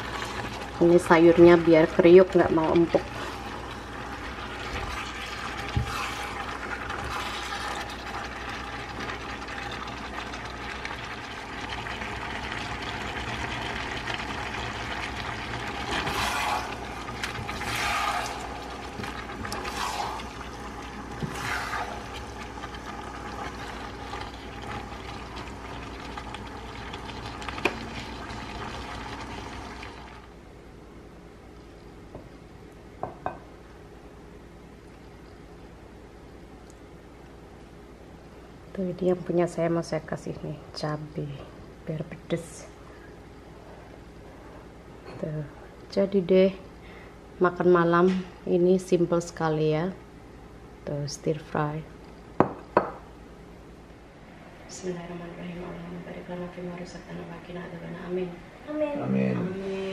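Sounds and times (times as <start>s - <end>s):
stir-fry sizzling in a pan: 0.0s - 30.3s.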